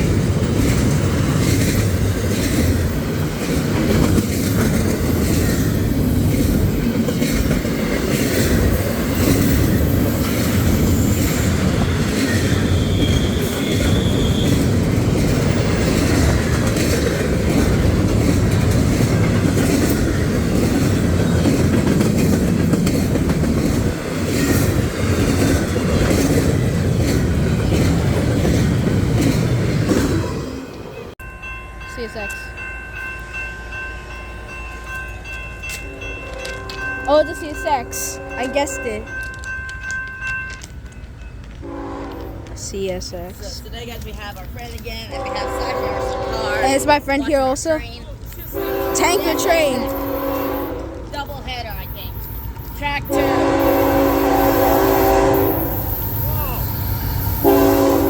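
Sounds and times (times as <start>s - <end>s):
wheels clicking over rail joints: 0.0s - 31.0s, 35.1s - 46.1s
railroad cars rumbling past: 0.0s - 58.0s.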